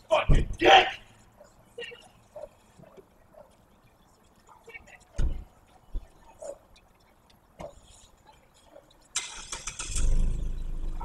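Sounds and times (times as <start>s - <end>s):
car engine starting and running: 9.2s - 11.0s.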